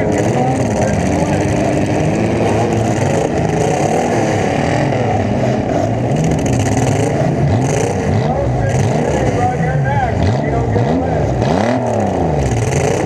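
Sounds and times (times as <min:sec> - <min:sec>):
car engines revving: 0:00.0 - 0:13.0
close car engine: 0:00.0 - 0:13.0.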